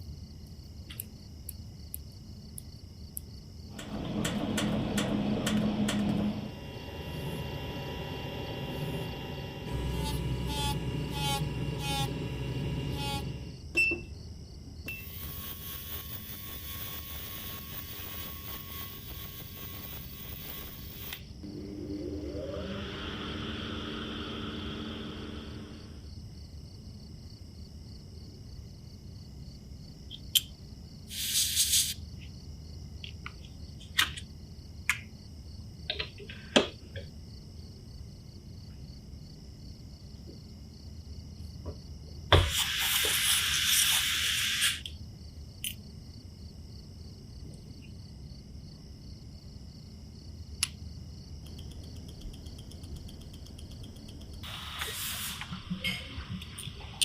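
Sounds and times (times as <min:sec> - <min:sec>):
short bursts of hissing: 0:15.0 - 0:21.2, 0:31.1 - 0:32.0, 0:42.4 - 0:44.9, 0:54.4 - 0:56.0.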